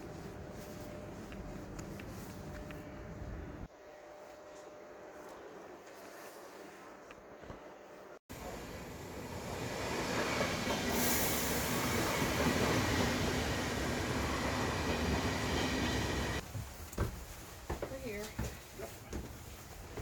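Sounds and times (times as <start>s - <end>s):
train rumbling on rails: 8.3s - 16.4s.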